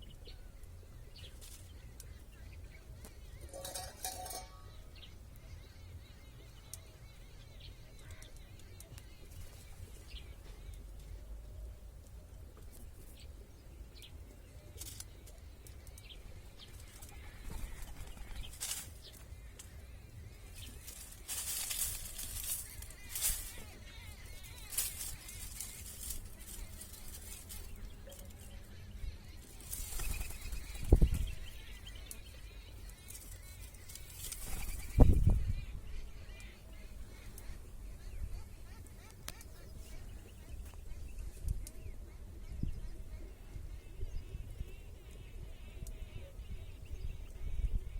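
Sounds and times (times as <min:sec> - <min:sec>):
faint bird chirping: 0:00.0 - 0:47.9
rustling: 0:20.5 - 0:28.6
low wind rumble on microphone: 0:28.7 - 0:33.0, 0:33.8 - 0:38.6, 0:40.0 - 0:47.9.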